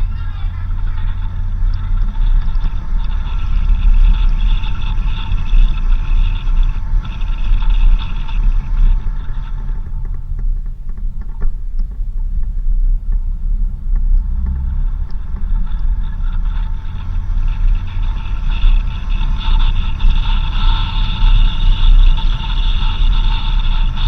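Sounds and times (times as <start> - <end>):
higher steady tones: 0.0 - 10.4
vehicle engine and tyres rumbling: 0.0 - 24.0.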